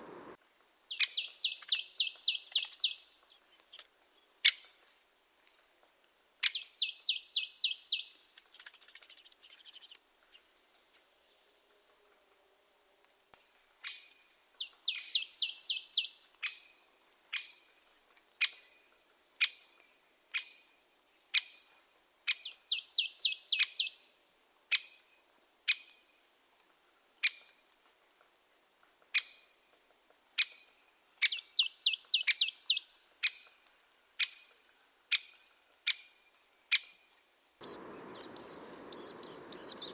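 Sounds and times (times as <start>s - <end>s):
rapid bird chattering: 37.6s - 39.9s
sharp bird call notes: 37.6s - 39.9s.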